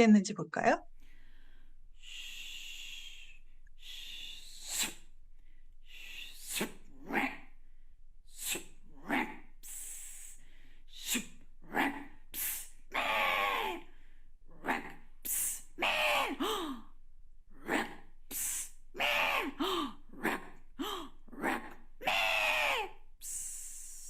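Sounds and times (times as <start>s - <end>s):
person hissing and shushing: 2.0s - 5.1s, 5.9s - 7.4s, 8.3s - 11.3s, 12.3s - 13.9s, 15.2s - 16.8s, 17.7s - 24.0s.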